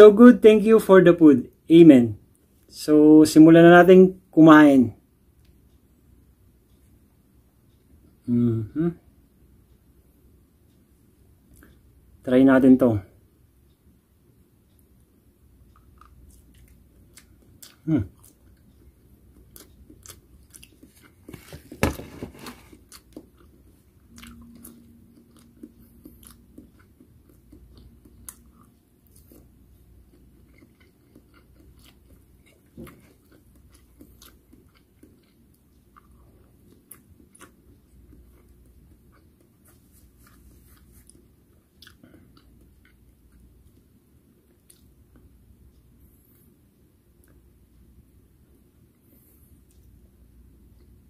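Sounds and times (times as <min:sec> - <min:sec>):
person chewing fried food: 0:15.6 - 0:46.3.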